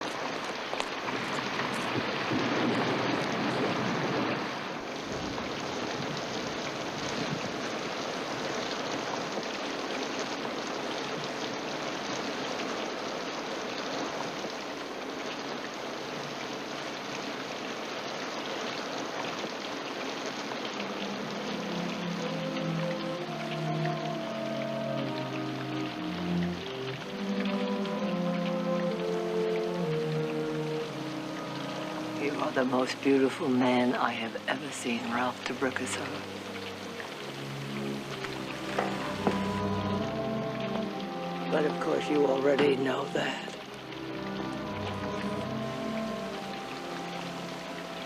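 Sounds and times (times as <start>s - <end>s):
rushing water: 0.0s - 48.0s
soft music: 20.4s - 48.0s.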